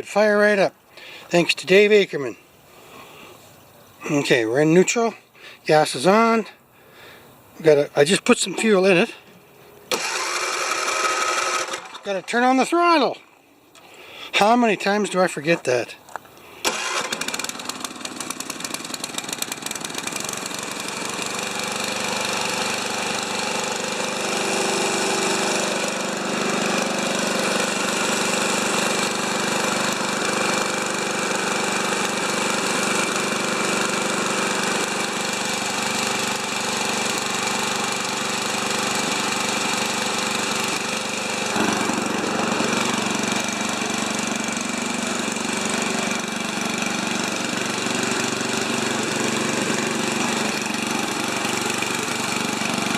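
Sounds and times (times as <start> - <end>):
snowblower engine running: 9.9 - 13.1, 16.6 - 52.9.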